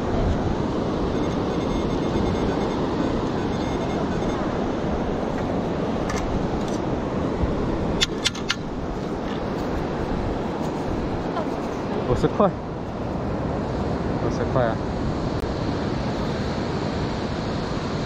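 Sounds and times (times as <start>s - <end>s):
faint metal detector tone: 0.0s - 6.4s
beach surf: 0.0s - 18.0s.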